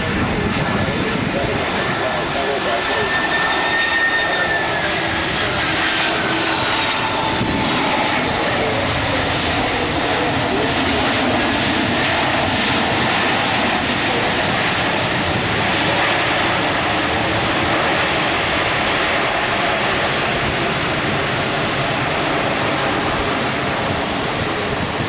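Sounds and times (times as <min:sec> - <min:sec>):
jet engines running: 0:00.0 - 0:25.0.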